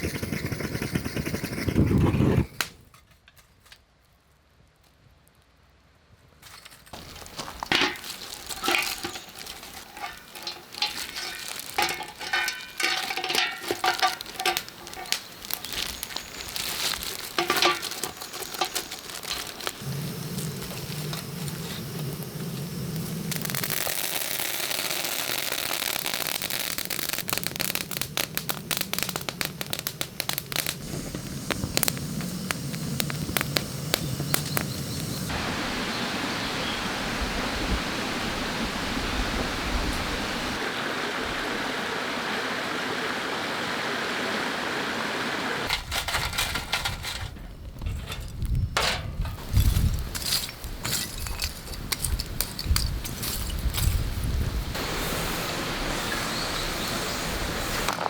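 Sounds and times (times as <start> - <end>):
wood fire crackling and popping: 6.9 - 35.3, 45.6 - 58.0
steady hiss: 7.0 - 45.8, 49.1 - 58.0.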